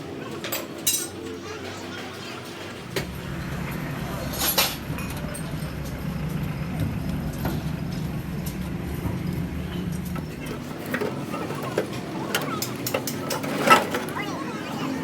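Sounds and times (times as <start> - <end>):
engine running with pulsing hum: 2.6 - 13.5.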